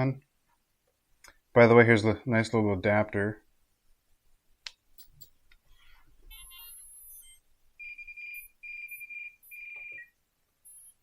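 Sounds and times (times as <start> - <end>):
high electronic chirps: 6.3 - 11.0
long electronic beeps: 6.3 - 11.0.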